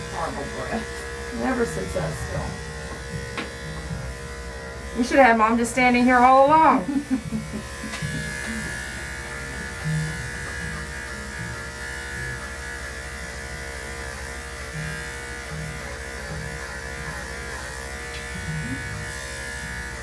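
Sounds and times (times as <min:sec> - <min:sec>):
electric clippers buzzing: 0:00.0 - 0:20.0.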